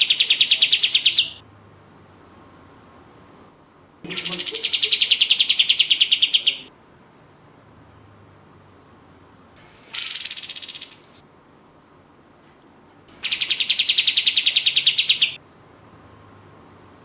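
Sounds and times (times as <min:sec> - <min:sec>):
songbird calling high notes: 0:00.0 - 0:01.4, 0:04.1 - 0:06.7, 0:10.0 - 0:11.1, 0:13.2 - 0:15.4.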